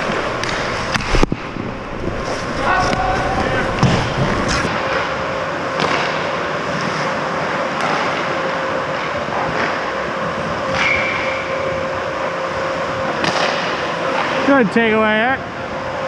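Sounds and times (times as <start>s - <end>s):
skates and sticks scraping ice: 0.0s - 4.7s
constant hum: 0.0s - 16.0s
steady noisy hiss: 0.0s - 16.0s.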